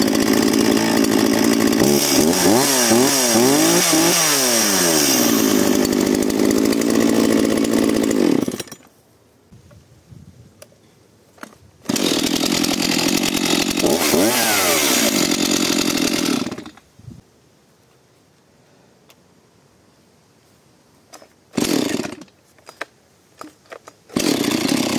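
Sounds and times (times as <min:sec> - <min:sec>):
chainsaw at full throttle: 0:00.0 - 0:08.8, 0:11.9 - 0:16.8, 0:21.6 - 0:22.3, 0:24.1 - 0:24.9.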